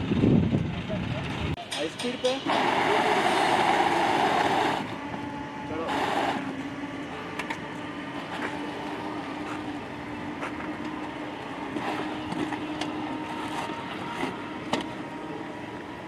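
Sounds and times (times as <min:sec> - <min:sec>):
machine humming: 0:01.2 - 0:16.0.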